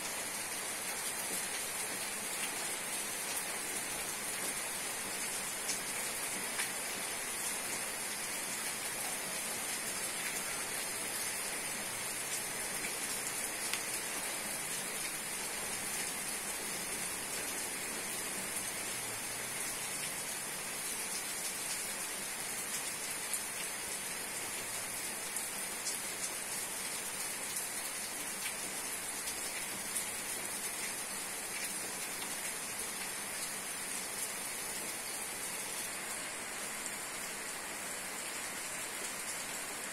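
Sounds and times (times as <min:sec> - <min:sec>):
rain falling: 0:00.0 - 0:39.9
raindrop ticks: 0:13.6 - 0:14.0.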